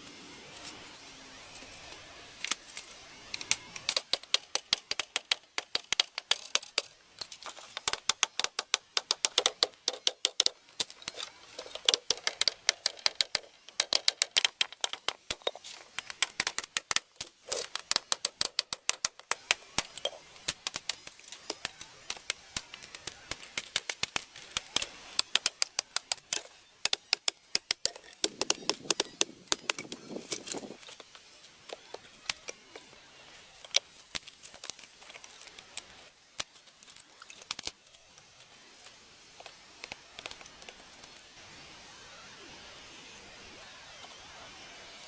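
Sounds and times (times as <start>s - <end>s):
rapid sharp clicks and taps: 3.8s - 32.9s.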